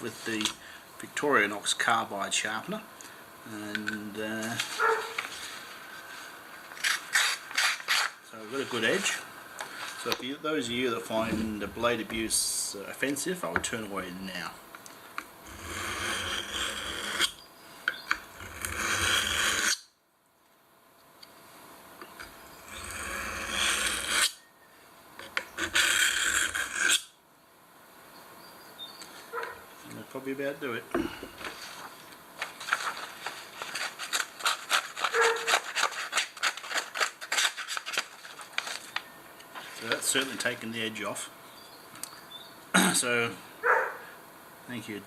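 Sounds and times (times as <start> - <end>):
knife blade scraping hard surface: 33.6 - 38.0.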